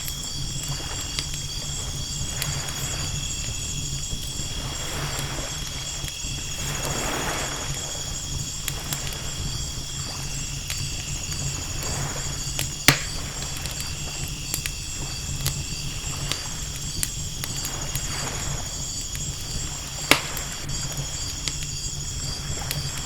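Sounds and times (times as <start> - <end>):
night insects chirring: 0.0 - 23.0
wood fire crackling and popping: 0.0 - 23.0
waves washing: 0.1 - 14.2.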